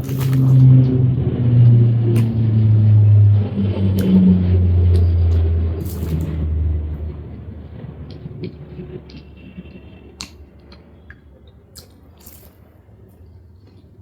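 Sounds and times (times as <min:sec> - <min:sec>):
chewing: 0:00.0 - 0:00.7, 0:10.2 - 0:14.0
low rumble: 0:00.0 - 0:10.0
mouth clicks and smacks: 0:02.1 - 0:02.4, 0:08.1 - 0:12.6.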